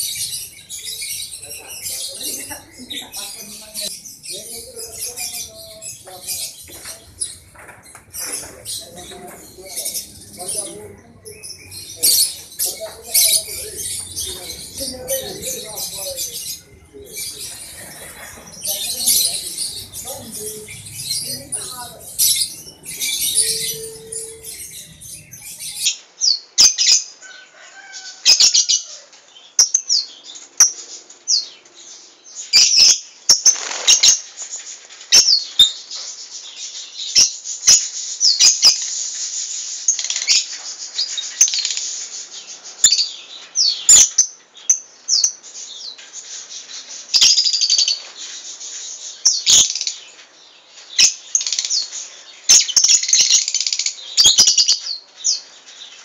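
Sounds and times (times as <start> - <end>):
birds chirping: 0.0 - 26.1.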